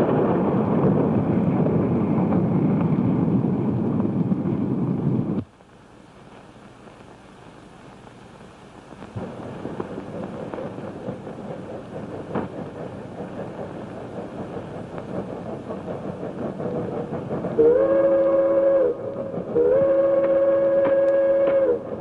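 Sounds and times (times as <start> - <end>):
steam locomotive rumbling and clattering: 0.0 - 5.4, 9.2 - 22.0
locomotive whistle blast: 17.6 - 21.9.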